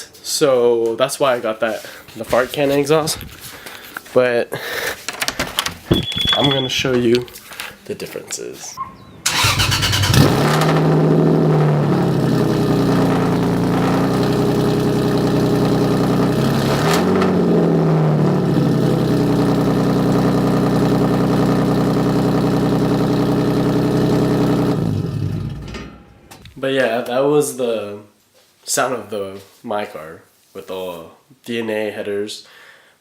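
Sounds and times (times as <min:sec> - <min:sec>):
engine throttle blip: 0:08.8 - 0:12.0
car engine loud idle: 0:09.3 - 0:25.7.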